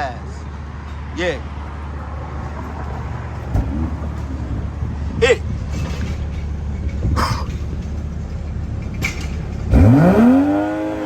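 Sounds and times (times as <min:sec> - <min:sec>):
steady low rumble: 0:01.8 - 0:10.1
car engine cold start: 0:08.9 - 0:11.0.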